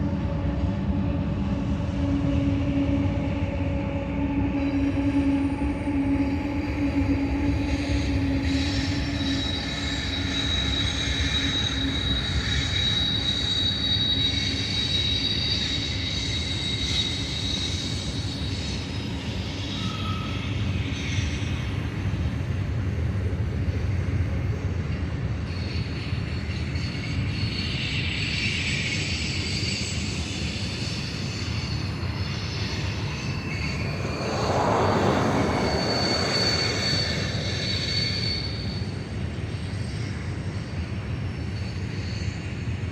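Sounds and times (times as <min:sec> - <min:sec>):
steel wheel squeal: 0:07.6 - 0:21.8, 0:25.6 - 0:40.6
freight cars rumbling past: 0:31.8 - 0:39.8.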